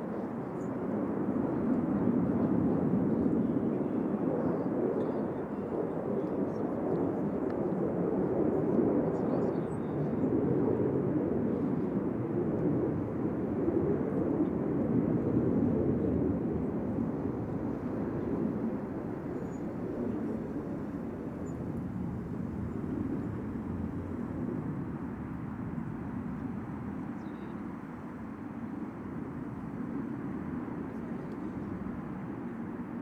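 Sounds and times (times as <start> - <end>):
jet engine rumble: 0.0 - 33.0.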